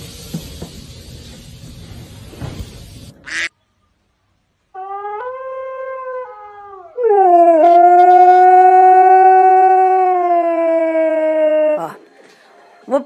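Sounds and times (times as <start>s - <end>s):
husky howling: 4.8s - 11.8s.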